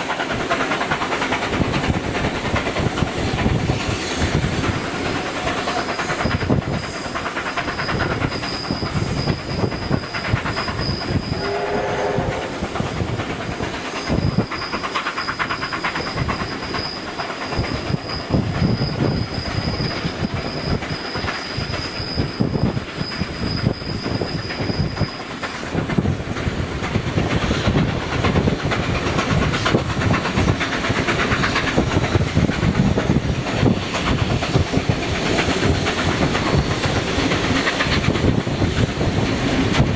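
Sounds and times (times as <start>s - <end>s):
train wheels clicking on rails: 0.0s - 39.9s
short pitched tone: 10.5s - 14.8s.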